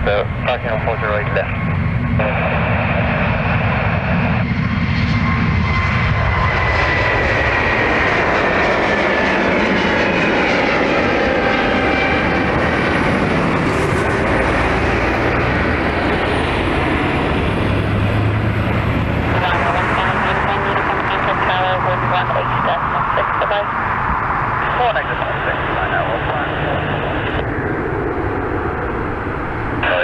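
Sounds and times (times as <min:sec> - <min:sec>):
jet engines passing at takeoff: 0:00.0 - 0:30.0.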